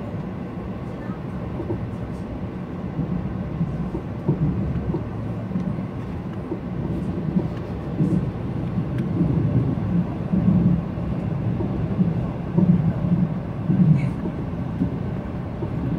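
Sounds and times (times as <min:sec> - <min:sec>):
train rumbling on rails: 0:00.0 - 0:15.9.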